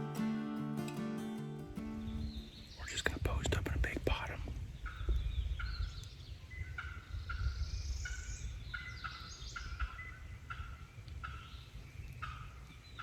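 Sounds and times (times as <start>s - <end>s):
birds' sweeping calls: 2.0s - 13.0s.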